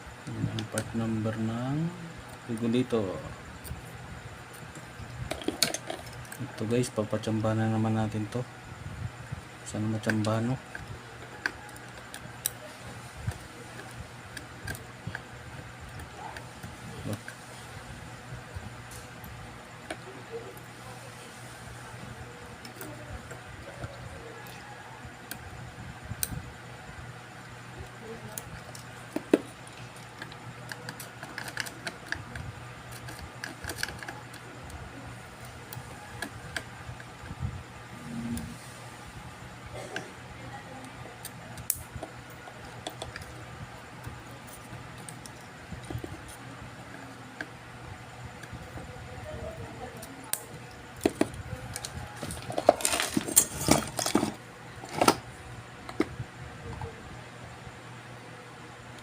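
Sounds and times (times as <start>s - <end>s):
steady low hum: 0.0s - 59.0s
small tools clicking and tapping: 4.5s - 6.7s, 27.9s - 34.5s, 41.2s - 43.4s.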